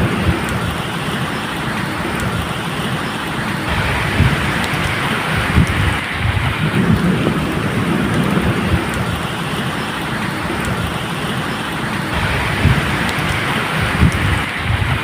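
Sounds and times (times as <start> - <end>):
rumble of thunder: 0.0 - 0.9, 3.7 - 11.1, 12.1 - 15.0
steady rain falling: 0.0 - 15.0.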